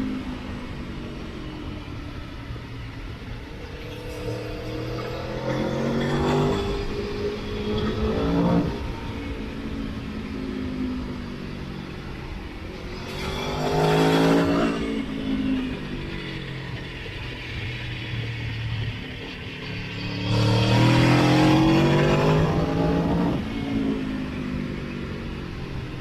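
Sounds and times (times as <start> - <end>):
motorcycle engine revving: 3.6 - 10.1, 12.9 - 24.4.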